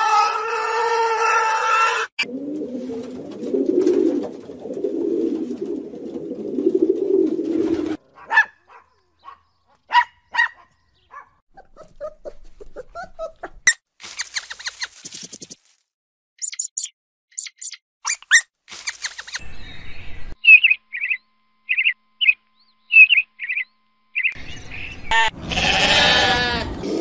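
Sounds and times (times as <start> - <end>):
pig squealing: 0.0 - 2.3, 25.1 - 27.0
dog barking: 8.0 - 11.4
pigs grunting: 25.1 - 27.0.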